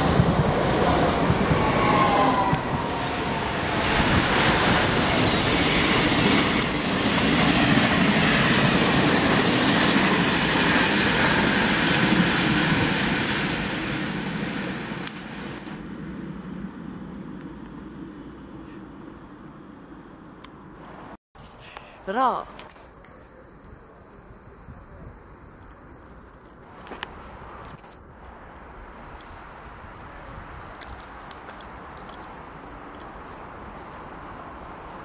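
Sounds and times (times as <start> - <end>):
train wheels rumbling on rails: 0.0 - 17.3.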